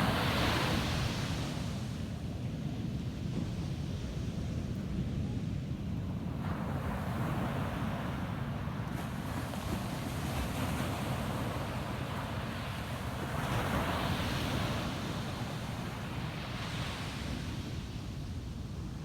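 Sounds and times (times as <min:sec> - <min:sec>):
ocean waves breaking on beach: 0:00.0 - 0:19.0.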